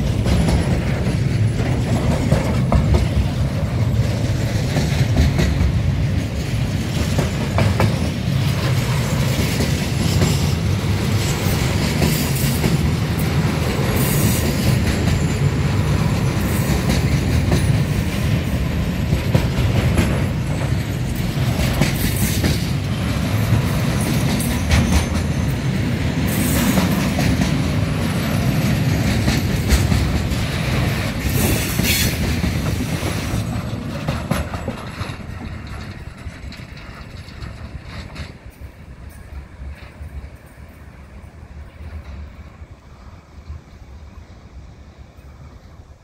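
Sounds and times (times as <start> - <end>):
freight train wheels clattering: 0.0 - 43.7.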